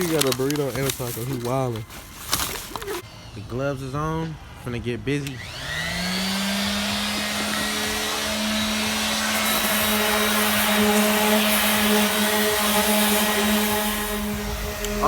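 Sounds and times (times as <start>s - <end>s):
power tool motor whining: 5.2s - 15.0s.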